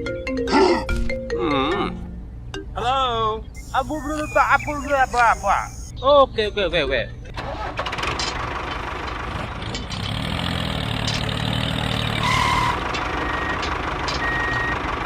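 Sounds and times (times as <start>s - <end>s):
short beep: 3.6s - 5.9s
engine humming: 7.3s - 15.0s.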